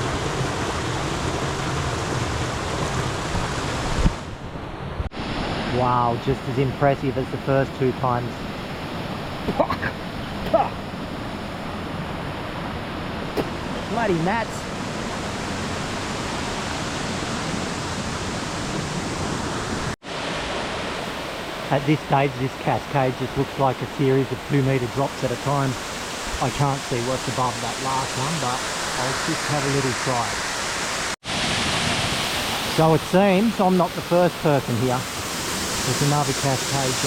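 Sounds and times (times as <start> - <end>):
waterfall rushing: 13.2 - 37.0.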